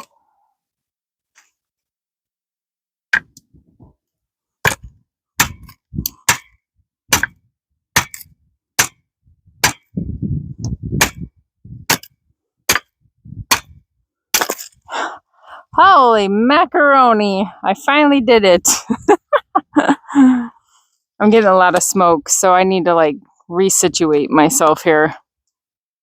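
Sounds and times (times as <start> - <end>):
axe chopping into log: 4.6 - 7.4, 8.0 - 9.0, 9.6 - 9.9, 11.0 - 11.3, 11.9 - 12.1, 12.7 - 12.9, 13.5 - 14.7.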